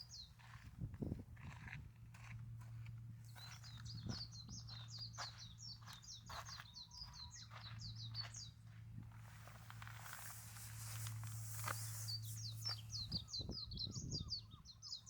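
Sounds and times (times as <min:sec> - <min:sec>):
small bird chirping: 0:03.3 - 0:08.6, 0:09.4 - 0:15.0.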